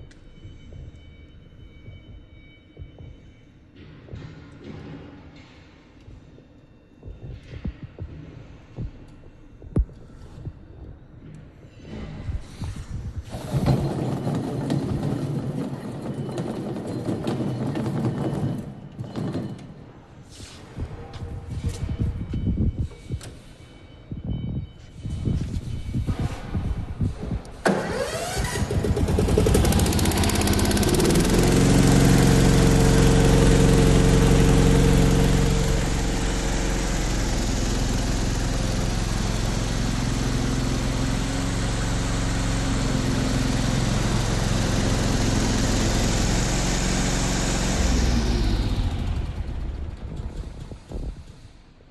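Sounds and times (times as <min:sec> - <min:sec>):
mower engine running: 0:27.7 - 0:50.8.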